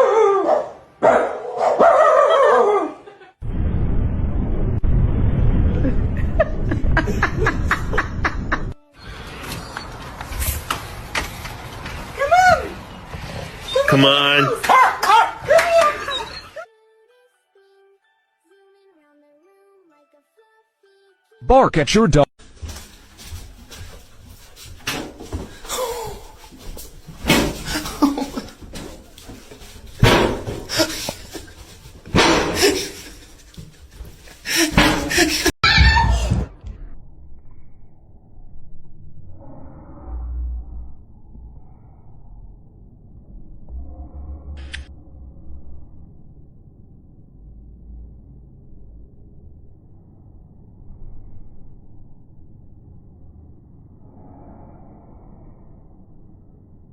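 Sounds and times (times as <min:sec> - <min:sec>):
dog barking: 0:00.0 - 0:03.0, 0:14.6 - 0:15.4
person laughing: 0:03.0 - 0:03.4, 0:05.8 - 0:08.8, 0:27.6 - 0:28.7, 0:30.7 - 0:31.7, 0:32.5 - 0:35.6.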